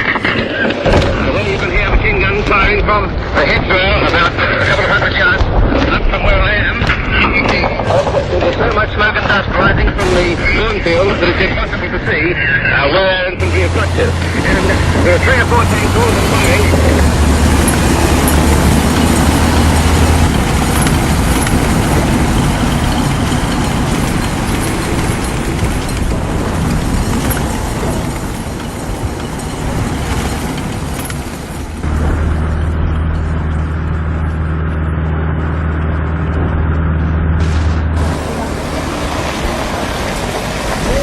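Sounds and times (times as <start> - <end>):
heavy vehicle engines rumbling: 0.0 - 41.0
low hum: 13.2 - 41.0.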